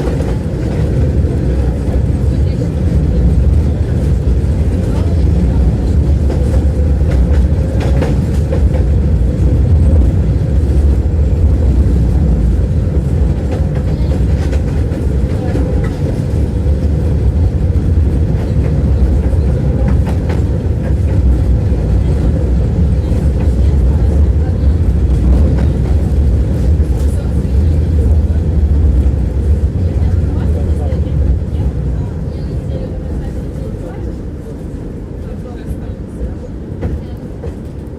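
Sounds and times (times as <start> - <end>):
tram wheels rumbling on rails: 0.0 - 37.9
clacks over rail joints: 2.7 - 31.6.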